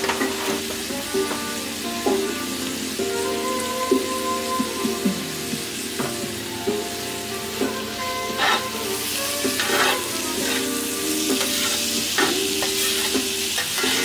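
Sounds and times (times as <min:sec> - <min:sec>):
metal spatula scraping pan: 0:00.0 - 0:01.4, 0:07.8 - 0:14.0
onions sizzling in a skillet: 0:00.0 - 0:14.0.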